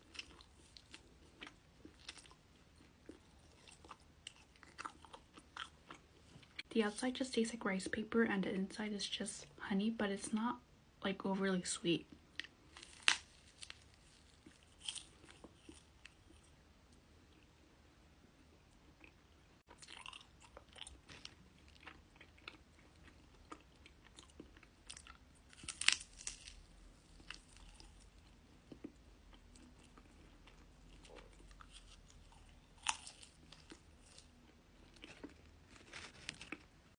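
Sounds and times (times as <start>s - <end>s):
soft chewing: 0.0s - 6.7s, 12.0s - 17.7s, 18.5s - 36.9s
crisp wafer crunching: 12.4s - 16.5s, 19.7s - 36.9s.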